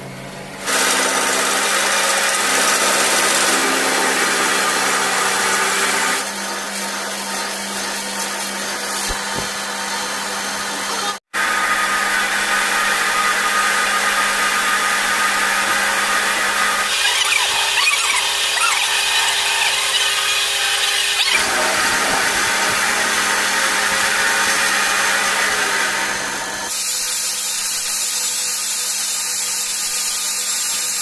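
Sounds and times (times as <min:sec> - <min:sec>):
power tool working metal: 0:00.0 - 0:31.0.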